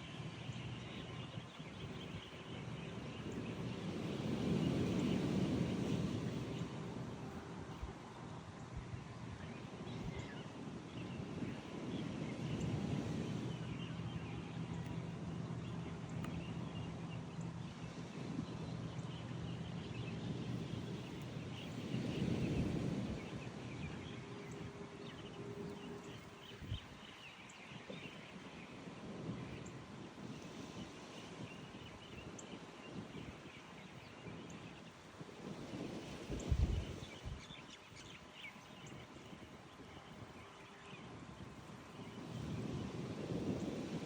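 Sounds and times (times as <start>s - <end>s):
birds chirping: 8.6s - 35.2s, 36.0s - 43.8s.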